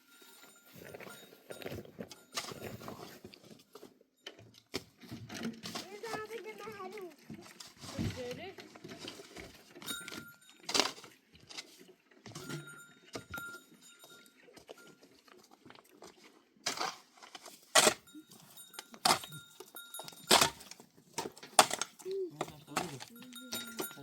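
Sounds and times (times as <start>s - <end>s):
metallic clinks and jingles: 0.0s - 5.4s, 9.8s - 11.0s, 12.3s - 15.1s, 17.8s - 24.0s.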